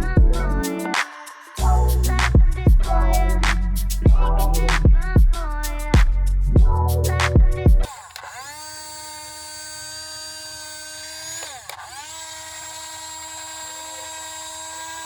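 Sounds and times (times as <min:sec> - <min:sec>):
music: 0:00.0 - 0:07.9
small electric motor whining: 0:07.9 - 0:15.0.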